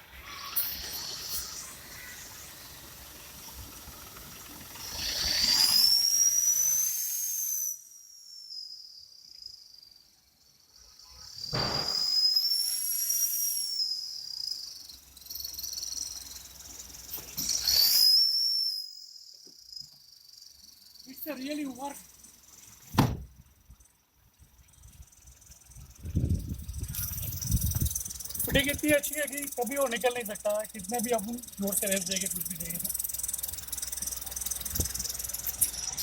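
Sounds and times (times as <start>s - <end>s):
exhaust whistle with engine revs: 0.0s - 8.6s, 17.0s - 19.3s.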